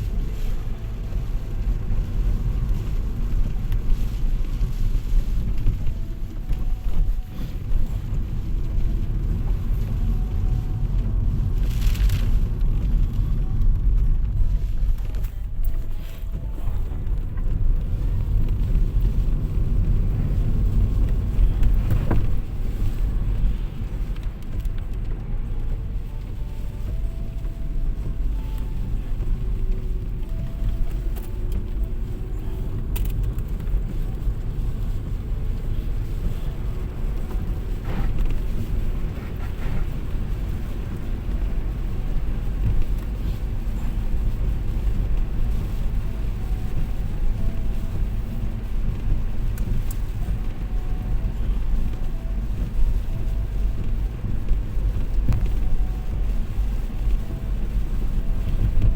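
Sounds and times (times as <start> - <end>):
car road and engine rumble: 0.0 - 58.9.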